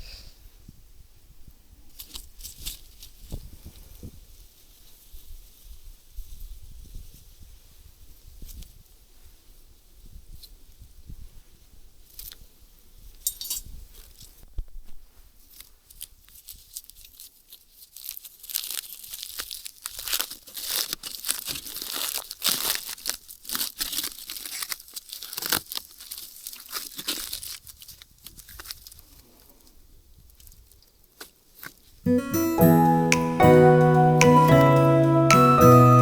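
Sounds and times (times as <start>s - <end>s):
wrapping crinkling and tearing: 16.4s - 28.9s.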